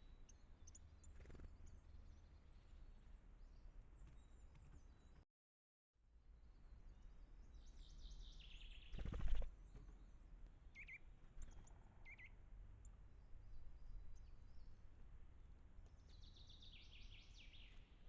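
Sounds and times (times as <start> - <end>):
small birds chirping: 0.0 - 5.2, 6.6 - 10.1, 10.7 - 15.0, 15.8 - 18.0.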